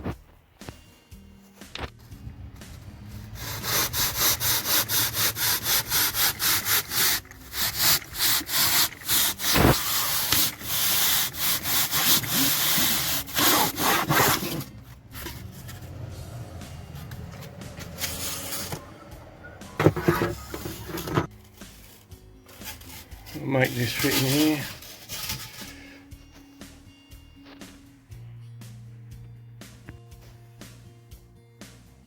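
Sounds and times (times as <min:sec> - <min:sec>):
hand sanding rasping strokes: 0:03.1 - 0:14.6, 0:16.6 - 0:25.9.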